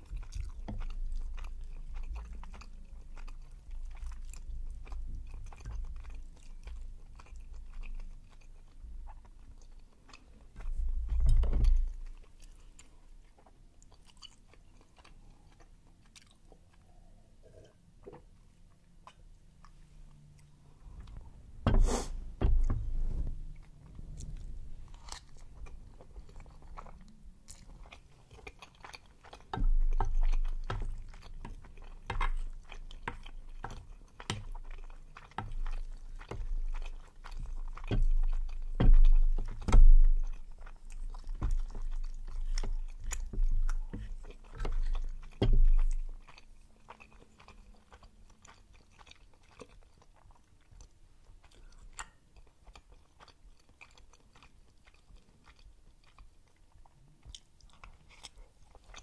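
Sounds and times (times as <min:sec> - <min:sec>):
chewing with wet mouth clicks: 0:00.0 - 0:21.4, 0:23.5 - 0:59.0.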